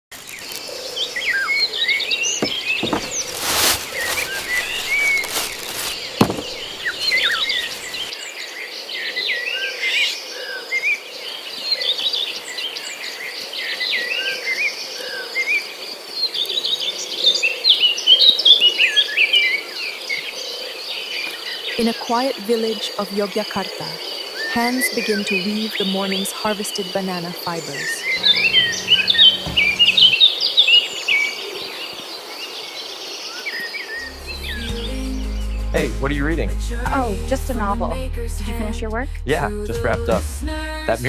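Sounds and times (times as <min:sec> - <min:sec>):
small birds chirping: 0:00.2 - 0:08.1, 0:19.8 - 0:35.9
sharp knocks: 0:02.4 - 0:03.8, 0:06.2 - 0:07.8, 0:28.2 - 0:30.2.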